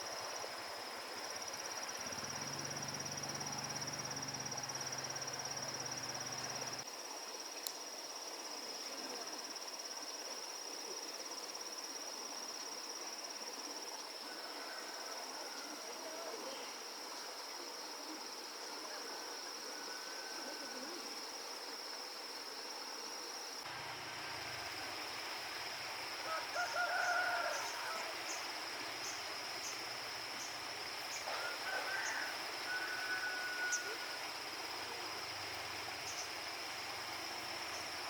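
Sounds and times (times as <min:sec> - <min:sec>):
high-pitched insect trill: 0:00.0 - 0:06.9, 0:23.2 - 0:38.0.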